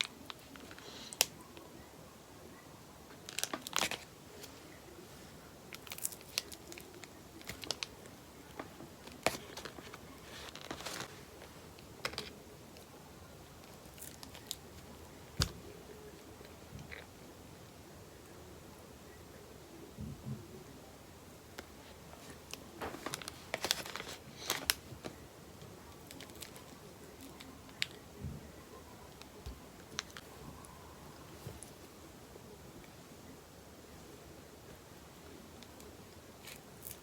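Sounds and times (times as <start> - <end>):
crinkling and rustling: 3.1 - 17.2, 21.6 - 32.1.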